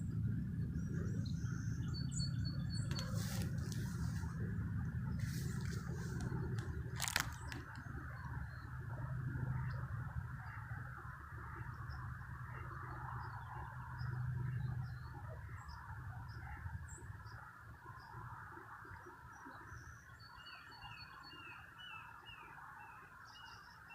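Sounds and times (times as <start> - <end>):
low rumble: 0.0 - 17.4
small birds chirping: 0.6 - 4.4, 5.0 - 8.9.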